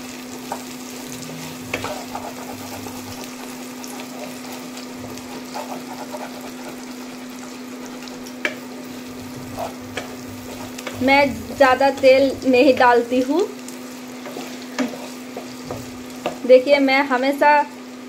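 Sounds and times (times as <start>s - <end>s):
vegetables sizzling in oil: 0.0s - 18.0s
steady low hum: 0.9s - 16.7s
spatula scraping and tapping pan: 1.6s - 13.0s, 14.2s - 16.5s.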